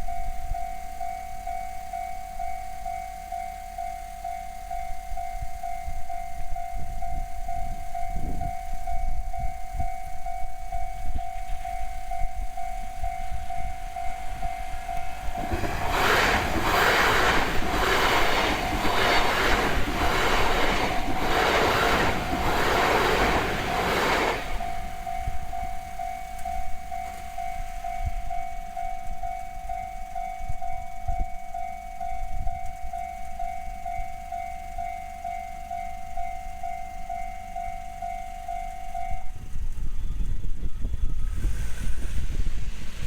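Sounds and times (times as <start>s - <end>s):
level crossing bell ringing: 0.0s - 39.4s
train rushing past: 7.0s - 31.2s, 37.0s - 43.0s
wheels clattering over rails: 11.2s - 26.6s.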